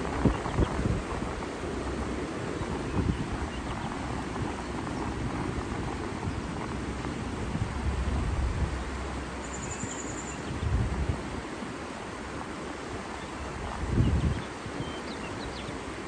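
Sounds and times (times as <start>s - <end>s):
rushing water: 0.0s - 16.0s
wind buffeting microphone: 0.0s - 16.0s
bird trill: 9.4s - 10.5s.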